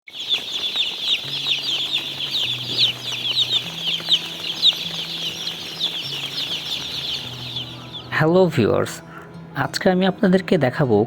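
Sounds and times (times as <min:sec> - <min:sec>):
chicks peeping: 0:00.0 - 0:08.8.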